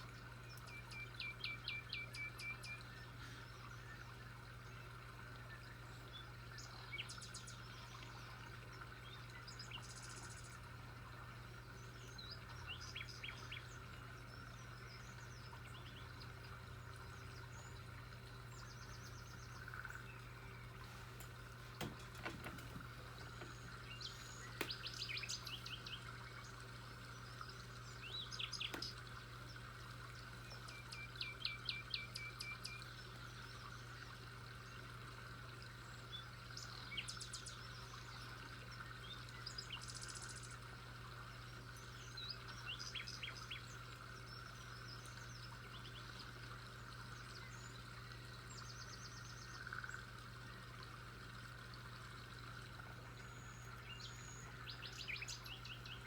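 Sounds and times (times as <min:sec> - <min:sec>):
birds chirping: 0:11.4 - 0:33.7.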